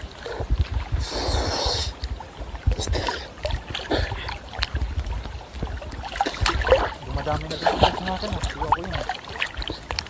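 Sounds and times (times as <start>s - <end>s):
seawater sloshing and splashing: 0.0s - 10.0s.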